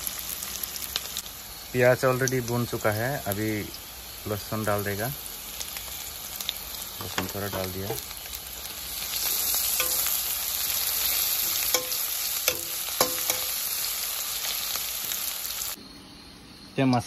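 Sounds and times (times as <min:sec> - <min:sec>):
onions sizzling in oil: 0:00.0 - 0:15.8
metal spatula clinking on pan: 0:09.8 - 0:10.3, 0:11.4 - 0:13.6.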